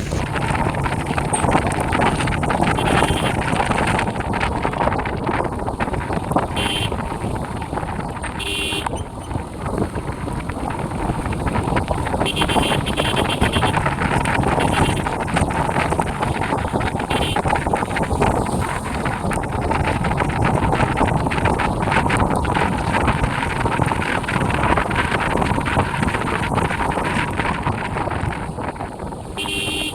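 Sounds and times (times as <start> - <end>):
motorcycle engine: 0.0 - 22.1, 29.3 - 29.9
wind buffeting microphone: 0.0 - 29.9.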